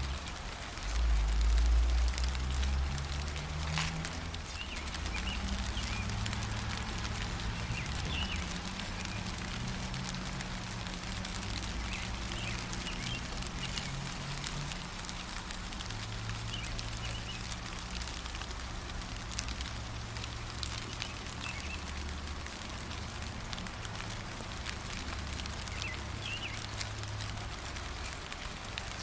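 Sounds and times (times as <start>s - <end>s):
gentle rain dripping: 0.0s - 29.0s
bird chirps: 7.6s - 9.3s, 20.9s - 21.8s, 25.7s - 26.7s.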